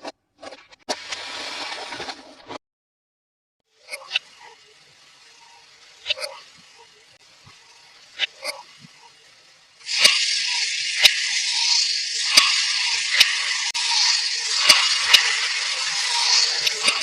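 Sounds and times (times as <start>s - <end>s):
steady high hissing rush: 4.2s - 17.0s.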